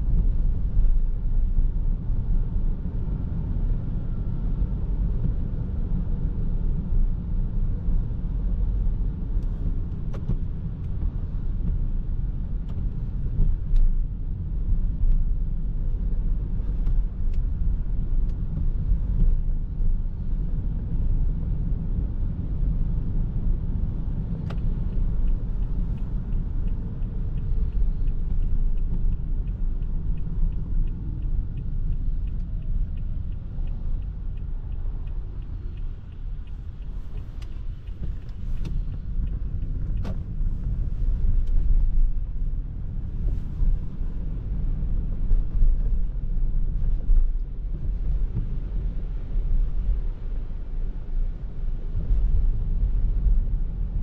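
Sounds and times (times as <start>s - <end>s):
road and tyre rumble: 0.0s - 54.0s
faint evenly spaced ticks: 24.6s - 42.5s.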